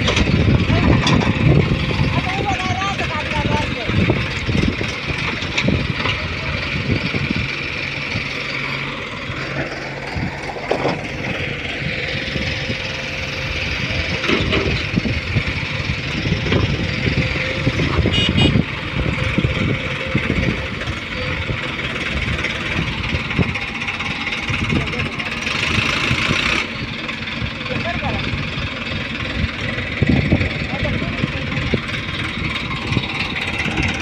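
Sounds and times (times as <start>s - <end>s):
knocks and clanks: 0.0s - 2.0s
diesel engine running: 0.0s - 34.0s.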